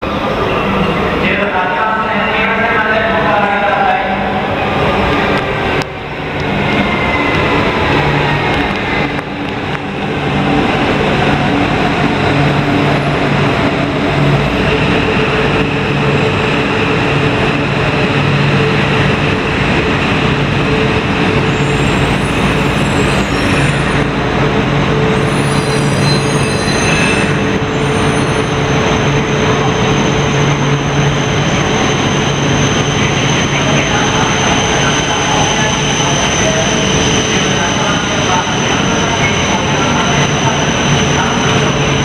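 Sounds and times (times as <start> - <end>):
train running noise with low hum: 0.0 - 42.0
high squeals: 25.2 - 39.5.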